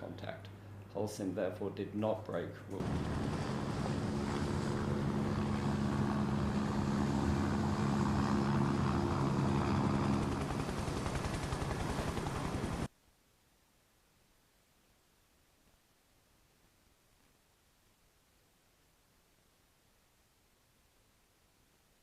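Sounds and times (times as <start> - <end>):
engine drone with rushing hiss: 2.8 - 12.9.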